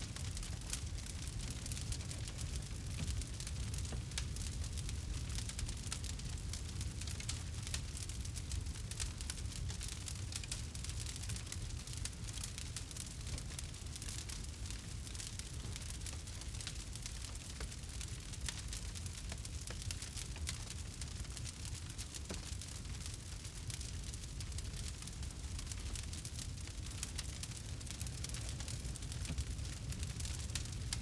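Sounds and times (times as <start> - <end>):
campfire wood crackling: 0.0 - 31.0
low steady rumble: 28.1 - 31.0.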